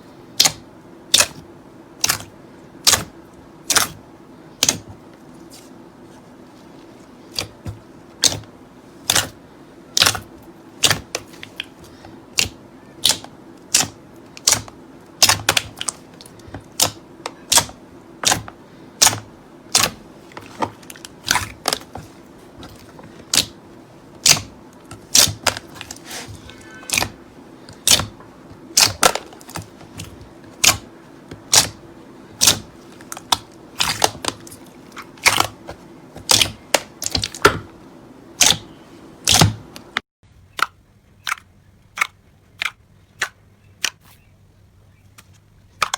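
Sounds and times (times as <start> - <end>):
slime clicking pops: 39.3 - 39.6.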